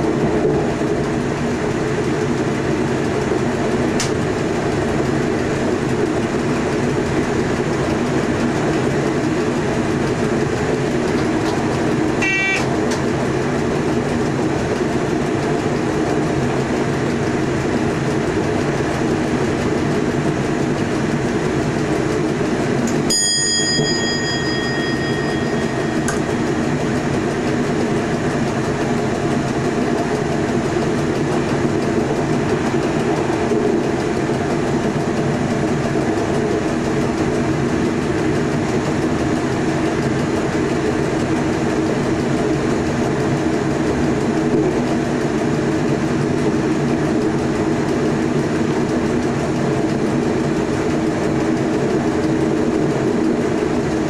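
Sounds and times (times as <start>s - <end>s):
train wheels rumbling on track: 0.0s - 54.0s
short ding: 23.1s - 26.5s
cab bell ringing: 23.1s - 26.8s.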